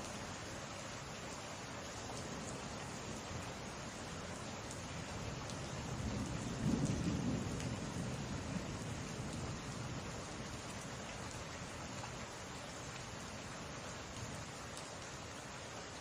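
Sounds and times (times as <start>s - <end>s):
steady rain falling: 0.0s - 16.0s
low rumble of thunder: 5.3s - 11.0s.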